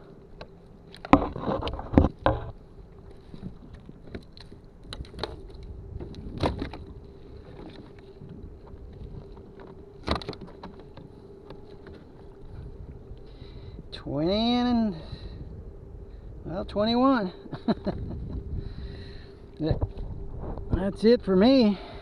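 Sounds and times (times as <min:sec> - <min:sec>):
knocks and clattering on kayak: 0:00.4 - 0:12.7.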